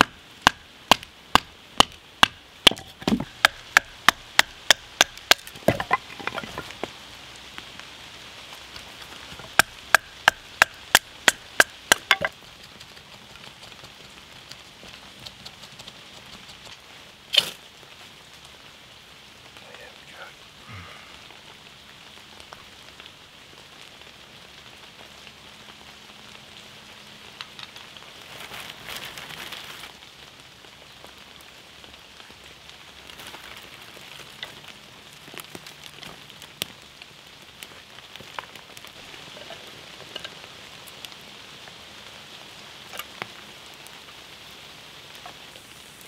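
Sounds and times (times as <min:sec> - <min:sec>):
kindling fire crackling: 0:00.0 - 0:46.0
rain on leaves: 0:00.0 - 0:46.0
twigs being laid on fire: 0:00.4 - 0:07.6, 0:08.5 - 0:12.4, 0:17.3 - 0:17.7, 0:27.4 - 0:29.9, 0:33.0 - 0:36.8, 0:37.6 - 0:41.2.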